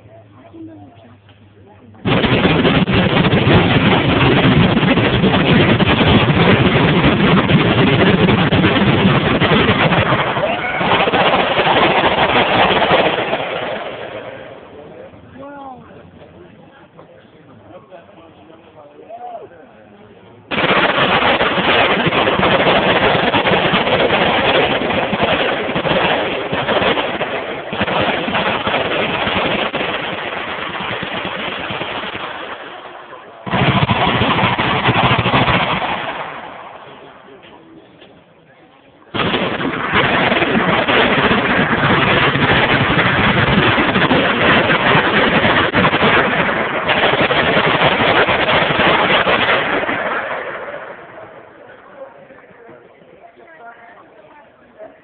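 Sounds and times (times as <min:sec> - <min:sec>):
machine guns firing: 0:02.0 - 0:14.4, 0:20.5 - 0:36.6, 0:39.2 - 0:51.0
heavy automatic gunfire: 0:02.0 - 0:14.6, 0:20.5 - 0:36.9, 0:39.1 - 0:51.3.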